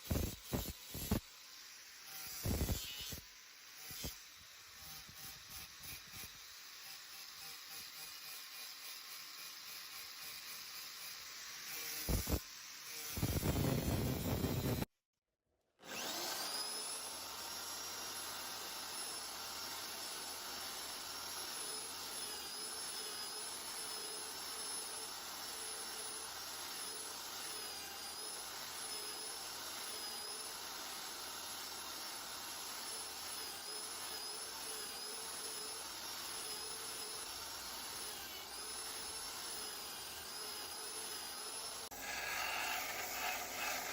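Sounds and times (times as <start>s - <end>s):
electric power tool whining: 15.8s - 43.9s
rough work noise: 41.8s - 43.9s.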